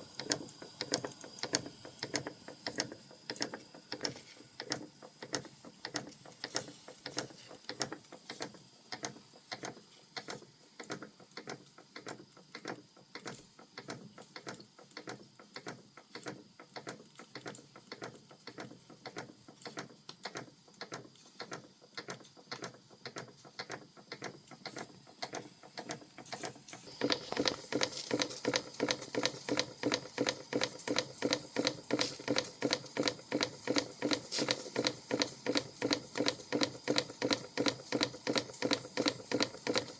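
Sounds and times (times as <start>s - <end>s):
model steam engine clattering: 21.4s - 39.9s.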